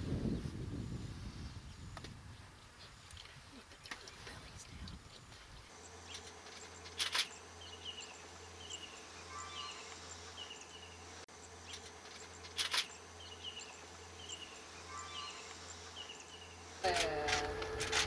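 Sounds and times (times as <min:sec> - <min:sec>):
insects chirping: 0:02.6 - 0:18.0
steady insect buzz: 0:04.2 - 0:18.0.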